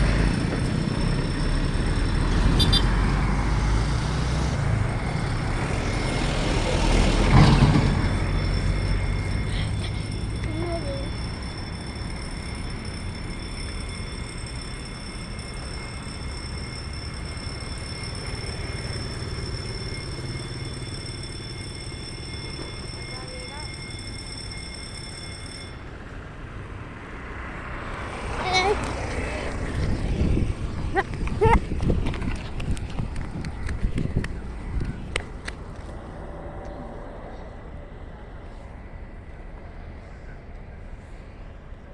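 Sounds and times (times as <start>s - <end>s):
train wheels rumbling on rails: 0.0s - 26.4s, 27.3s - 41.9s
thin high whine: 4.7s - 26.2s.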